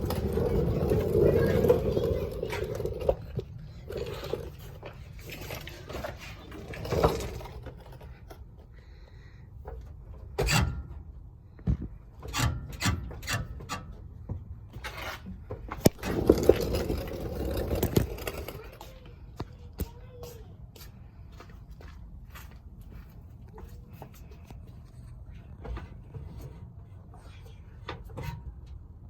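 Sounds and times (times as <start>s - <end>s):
suspension scraping creaks: 0.0s - 19.1s, 23.9s - 29.0s.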